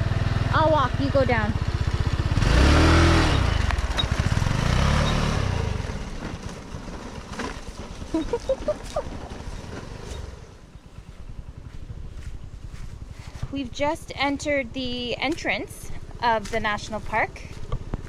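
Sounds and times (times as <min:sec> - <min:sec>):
scooter engine revving: 0:00.0 - 0:13.3.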